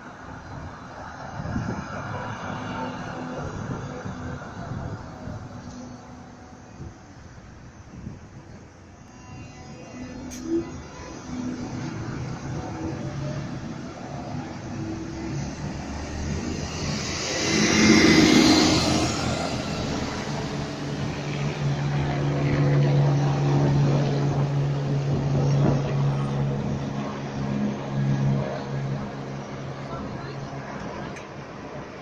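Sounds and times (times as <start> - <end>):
vehicle passing close by: 10.5 - 31.1.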